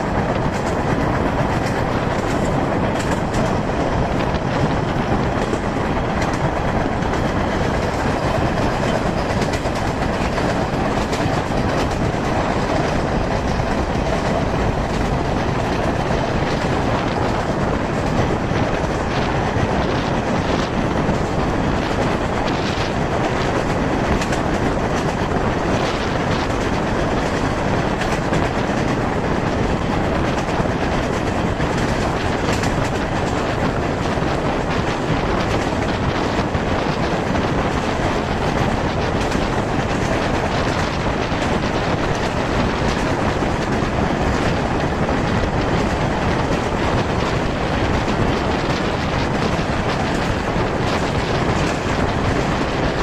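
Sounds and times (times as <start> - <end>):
train running noise: 0.0 - 53.0.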